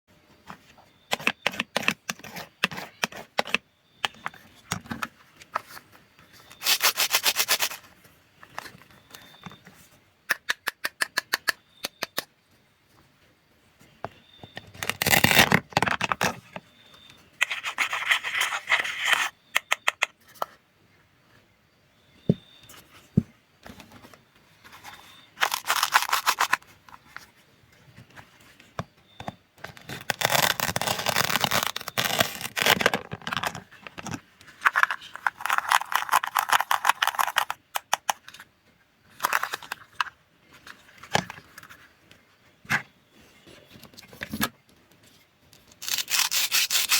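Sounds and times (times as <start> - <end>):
crunchy cutting of food: 25.4 - 26.6, 34.8 - 38.2.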